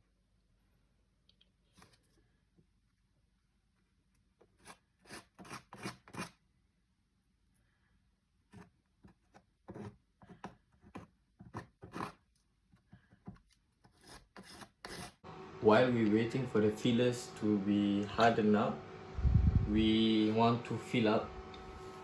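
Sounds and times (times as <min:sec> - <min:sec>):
putty knife scraping wood: 0:04.4 - 0:06.4, 0:08.5 - 0:12.3, 0:13.2 - 0:15.2.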